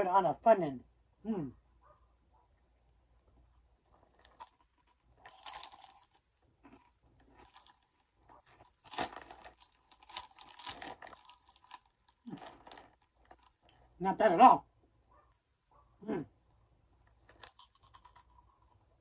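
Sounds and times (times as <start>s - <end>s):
crunchy snack being chewed: 3.8s - 14.0s, 17.0s - 19.0s
snack bag crinkling: 3.8s - 14.0s, 17.0s - 19.0s.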